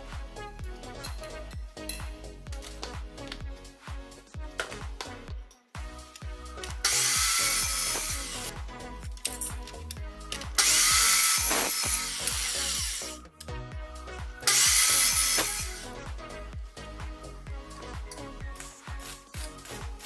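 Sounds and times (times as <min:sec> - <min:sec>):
music with steady beat: 0:00.0 - 0:20.0
power tool cutting: 0:06.8 - 0:08.5, 0:10.6 - 0:13.2, 0:14.4 - 0:15.8.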